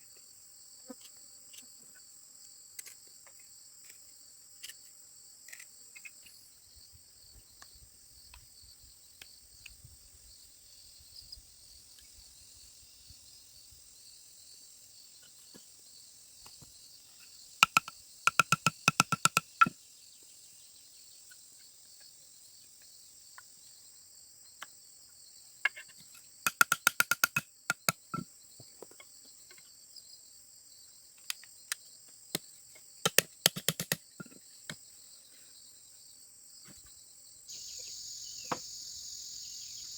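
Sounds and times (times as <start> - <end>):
high insect chorus: 0.0 - 39.9
sharp knocks striking bamboo: 17.6 - 19.8, 26.4 - 28.3, 33.0 - 34.4.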